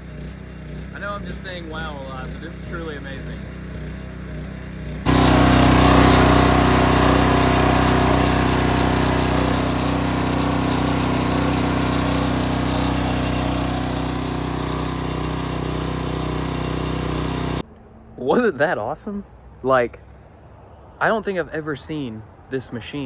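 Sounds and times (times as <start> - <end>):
pressure washer engine running: 0.0 - 17.6
high-pressure spray hissing: 5.1 - 17.6.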